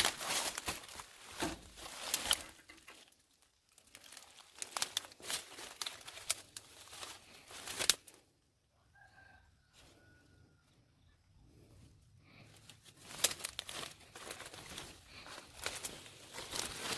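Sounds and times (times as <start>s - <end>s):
material rustling and tearing: 0.0s - 8.2s, 13.0s - 16.9s.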